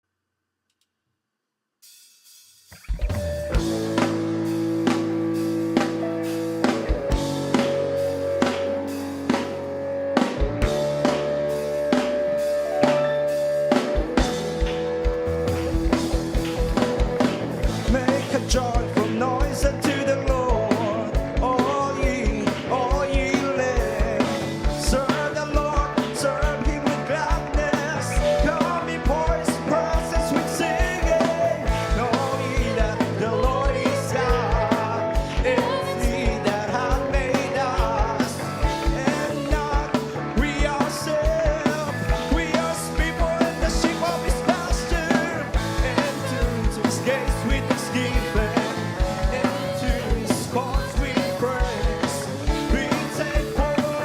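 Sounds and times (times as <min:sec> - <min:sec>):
steady drum beat: 0:01.8 - 0:54.0
bass line: 0:02.8 - 0:54.0
choir singing gospel: 0:30.2 - 0:40.9, 0:41.6 - 0:54.0.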